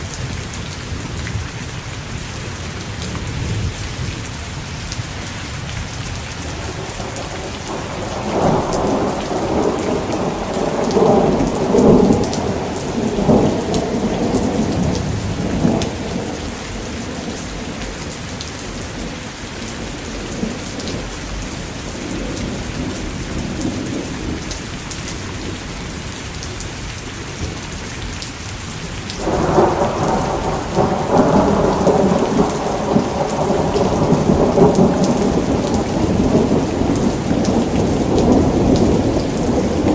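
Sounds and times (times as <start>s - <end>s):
steady rain: 0.0s - 39.9s
rolling thunder: 6.4s - 24.6s, 29.2s - 39.9s.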